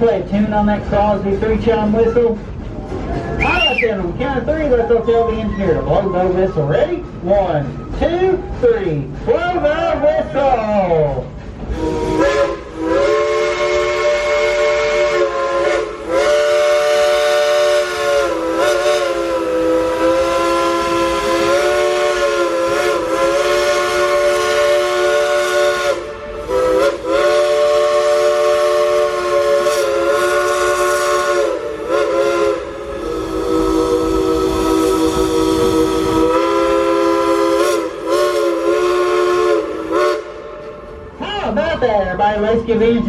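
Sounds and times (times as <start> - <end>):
steam hiss: 11.3 - 40.9
steam locomotive chime whistle: 11.7 - 40.9.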